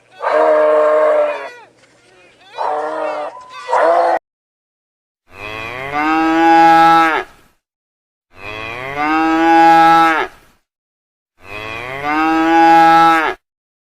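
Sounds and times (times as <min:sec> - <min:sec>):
cow mooing: 0:11.4 - 0:13.4.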